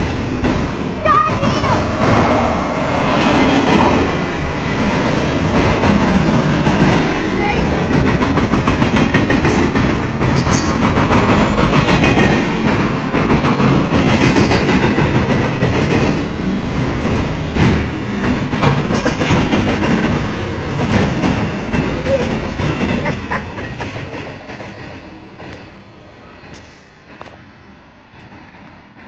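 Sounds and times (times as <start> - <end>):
steel wheels rumbling on rail: 0.0 - 29.0
wheels clicking over rail joints: 3.1 - 25.8.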